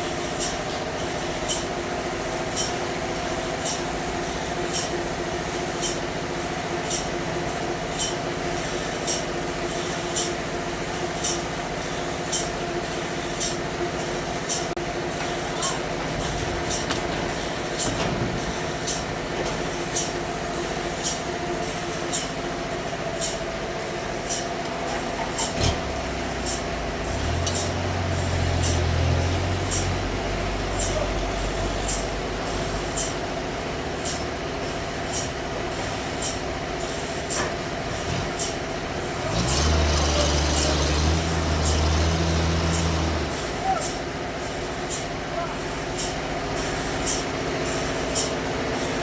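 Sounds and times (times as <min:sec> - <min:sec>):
sawmill machinery hum: 0:00.0 - 0:49.0
deep engine drone: 0:24.6 - 0:37.2, 0:37.8 - 0:44.3.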